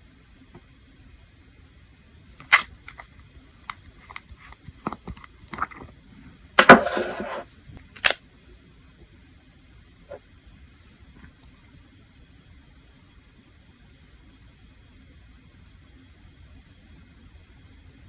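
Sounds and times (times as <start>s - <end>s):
rustling scrape: 6.6s - 7.5s.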